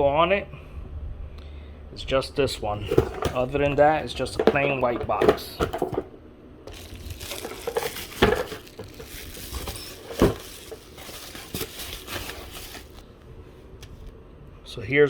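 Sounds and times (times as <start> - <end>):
cardboard packaging rustling: 2.7 - 6.1, 6.7 - 13.0.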